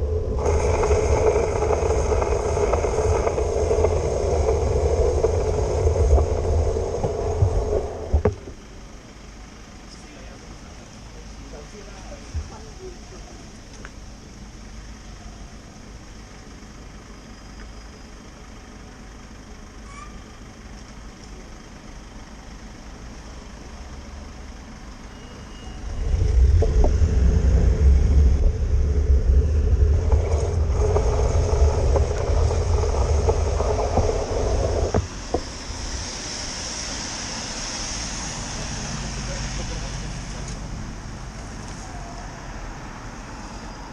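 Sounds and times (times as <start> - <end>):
heavy vehicle passing close: 0.0 - 8.5, 25.4 - 41.9
city traffic hum: 0.0 - 43.9.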